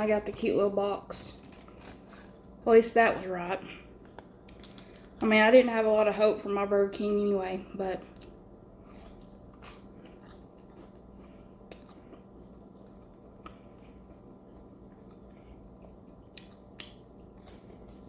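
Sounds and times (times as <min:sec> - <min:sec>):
faint chewing: 0:01.3 - 0:05.3, 0:08.0 - 0:18.0.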